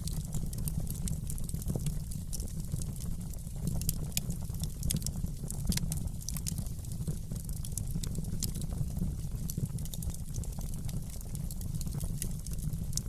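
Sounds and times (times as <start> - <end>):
fire crackling and popping: 0.0 - 13.0
low rumble of burning fire: 0.0 - 13.0.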